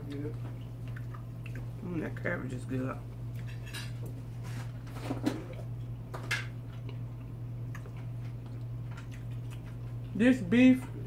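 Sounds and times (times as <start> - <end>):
person chewing food: 0.1 - 1.8, 5.4 - 10.2.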